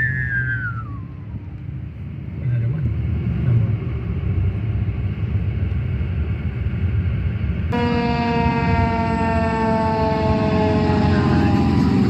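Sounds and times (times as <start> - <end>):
fire truck engine rumbling: 0.0 - 12.0
air horn blast: 7.7 - 12.0.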